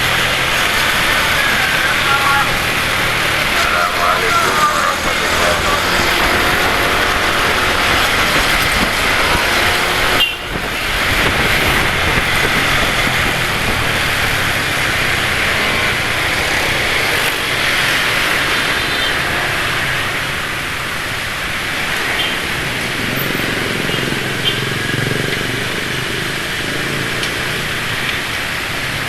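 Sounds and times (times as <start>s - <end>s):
wind rushing: 0.0s - 18.2s
road noise: 0.0s - 29.0s
vehicle engines: 0.0s - 29.0s.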